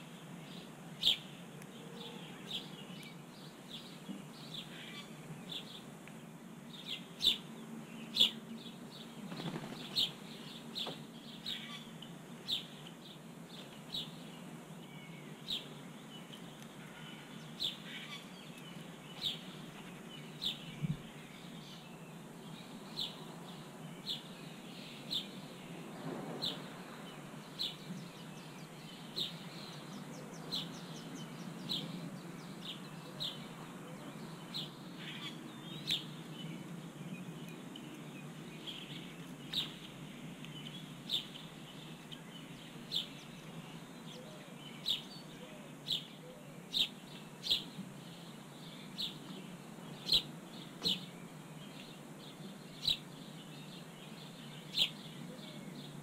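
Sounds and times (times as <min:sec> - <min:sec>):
steady outdoor hiss: 0:00.0 - 0:56.0
small bird chirping: 0:09.0 - 0:13.0, 0:27.5 - 0:55.8.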